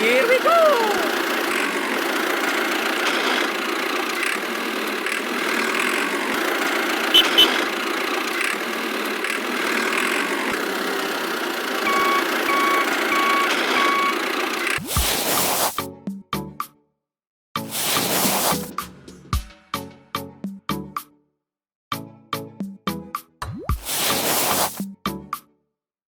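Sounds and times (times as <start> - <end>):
toy bulldozer motor running: 0.0 - 15.8
reversing alarm beeping: 7.1 - 7.6, 11.8 - 14.3.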